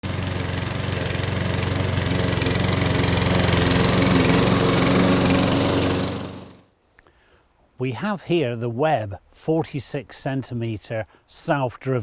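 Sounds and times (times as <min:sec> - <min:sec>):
lawnmower engine running: 0:00.0 - 0:06.7.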